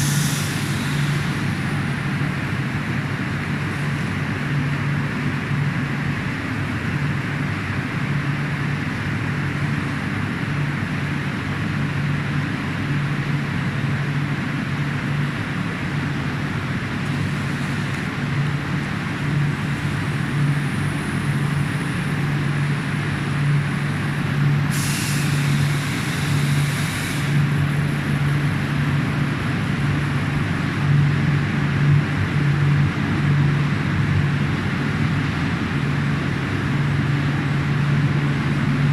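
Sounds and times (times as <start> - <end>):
brief hiss: 0.0 - 1.4, 24.7 - 27.4.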